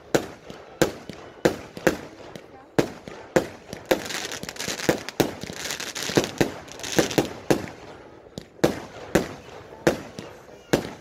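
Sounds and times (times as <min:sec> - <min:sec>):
firework hiss and crackle: 0:00.0 - 0:11.0
firework shells bursting: 0:00.0 - 0:11.0.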